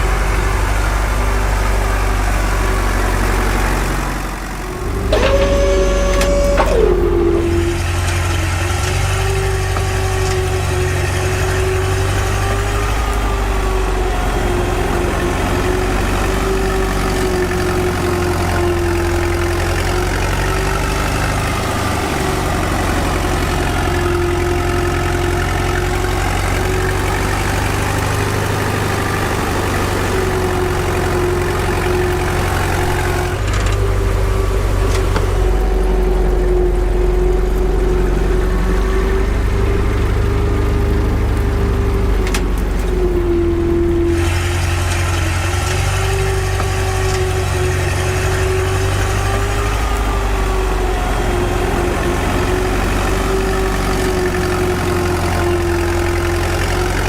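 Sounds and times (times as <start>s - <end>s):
small motor whining: 3.1s - 57.0s.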